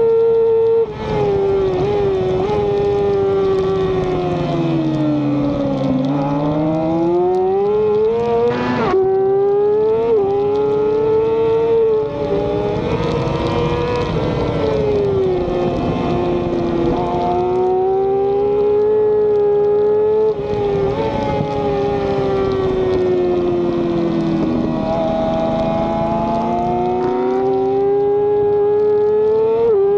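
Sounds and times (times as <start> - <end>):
racing motorcycle engine: 0.0 - 29.9.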